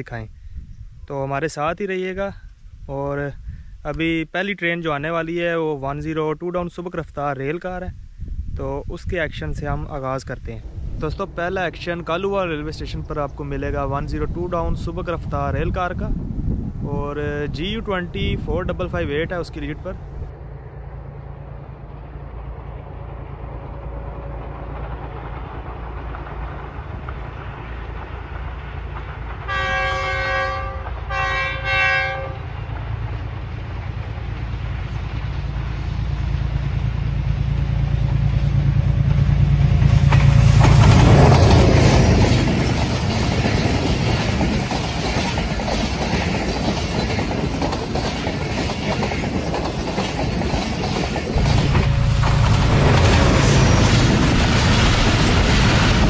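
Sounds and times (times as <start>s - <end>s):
locomotive engine passing: 9.8s - 31.2s, 32.2s - 56.0s
locomotive horn blasts: 29.5s - 32.6s
coaches clattering over rail joints: 39.8s - 54.4s.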